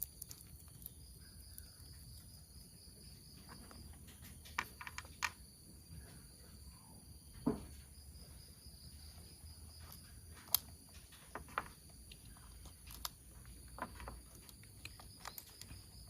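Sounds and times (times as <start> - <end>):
plastic toy parts clicking: 0.0 - 1.6, 10.4 - 16.0.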